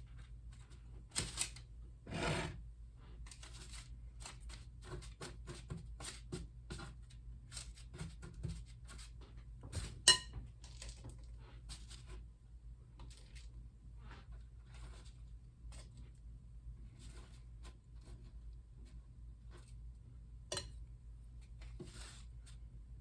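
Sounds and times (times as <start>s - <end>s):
spoon clinking on bowl: 10.1s - 10.4s.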